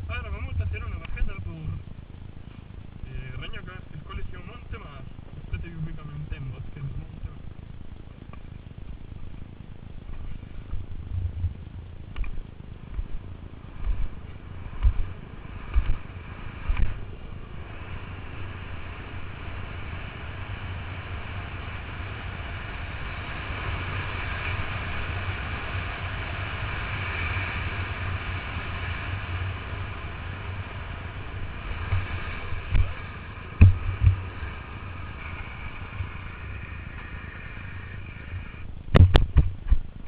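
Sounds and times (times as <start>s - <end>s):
longboard wheels rolling on pavement: 0.0s - 40.0s
wind noise: 0.0s - 40.0s
board clacking over bumps: 31.8s - 34.6s.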